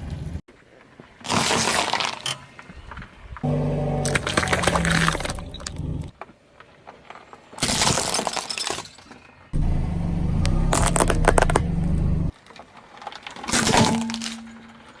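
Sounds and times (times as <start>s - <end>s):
objects crunching under car tyres: 0.6s - 9.7s, 10.4s - 15.0s
low engine hum: 9.6s - 12.3s
crackling: 10.4s - 15.0s.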